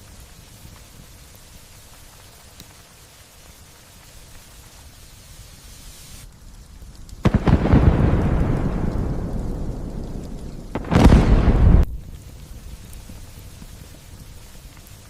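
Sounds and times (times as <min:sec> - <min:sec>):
light rain falling: 0:00.0 - 0:15.0
thunder clap and rumble: 0:07.2 - 0:13.2.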